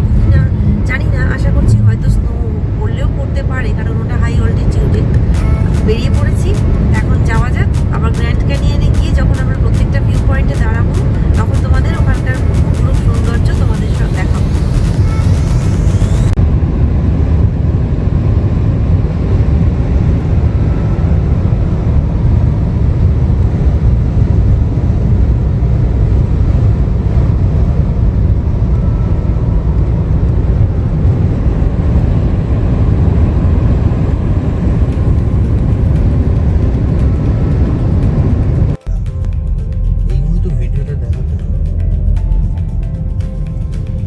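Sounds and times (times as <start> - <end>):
car road and engine rumble: 0.0 - 44.0.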